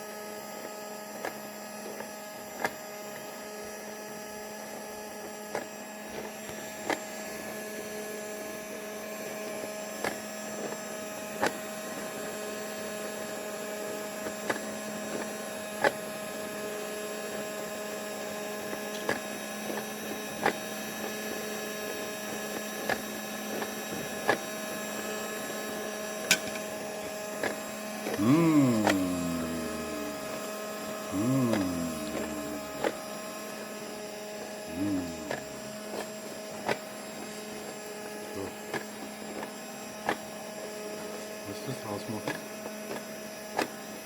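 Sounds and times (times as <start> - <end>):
small motor humming: 18.5 - 44.0.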